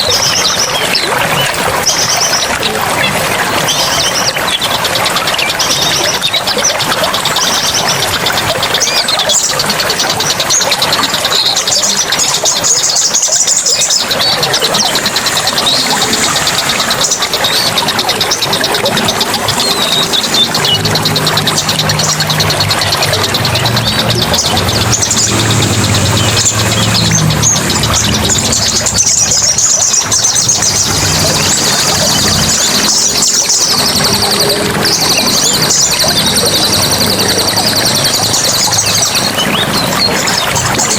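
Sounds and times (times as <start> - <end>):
songbirds chirping and trilling: 0.0 - 40.9
steady rushing background: 13.4 - 40.9.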